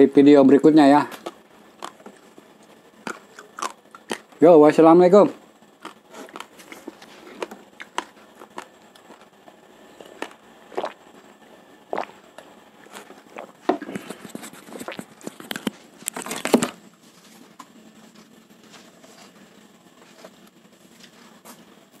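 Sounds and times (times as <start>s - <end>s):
raw rice grains crunching when chewed: 1.1s - 2.4s, 3.0s - 4.4s, 5.8s - 9.3s, 9.9s - 11.2s, 11.9s - 16.7s.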